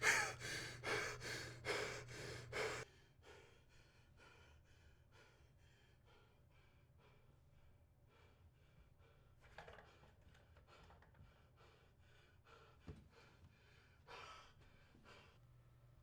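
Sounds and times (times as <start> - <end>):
person panting: 0.0 - 3.5.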